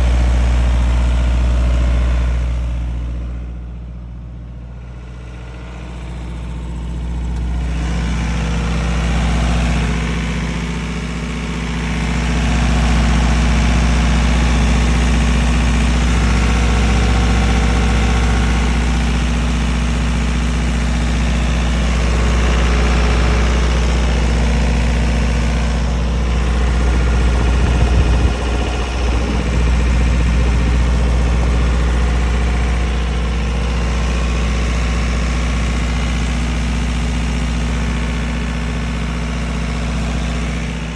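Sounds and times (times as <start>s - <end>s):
diesel generator running: 0.0s - 40.9s
low rumble: 20.8s - 36.6s.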